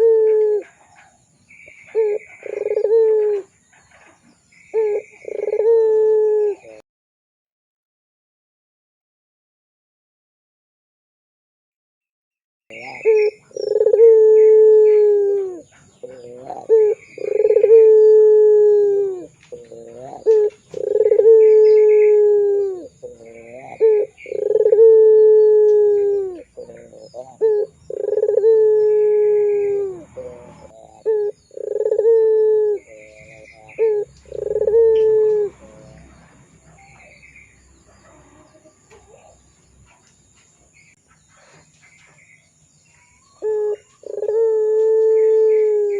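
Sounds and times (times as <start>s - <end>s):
faint bird chirps: 0.0s - 6.8s, 12.7s - 36.0s
turtle dove cooing: 0.0s - 6.8s, 12.7s - 39.5s, 43.1s - 45.9s.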